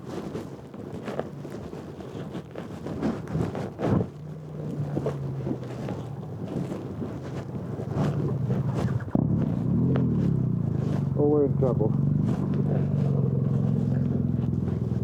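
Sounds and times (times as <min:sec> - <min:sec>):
wind buffeting microphone: 0:02.9 - 0:15.0
motorcycle engine idling: 0:07.2 - 0:15.0.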